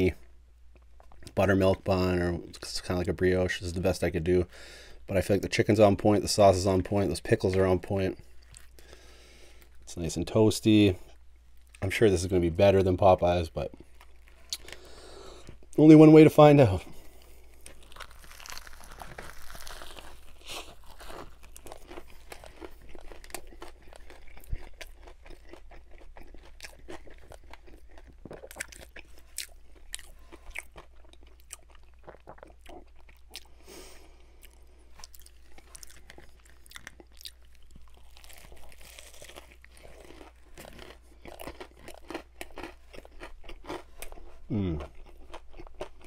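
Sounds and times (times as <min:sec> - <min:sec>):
crunchy chicken chewing: 0:17.0 - 0:46.0.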